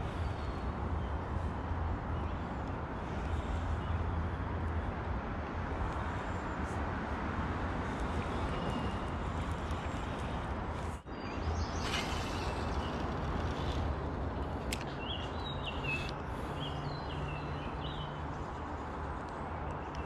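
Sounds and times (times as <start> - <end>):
outdoor rumble: 7.5 - 15.0.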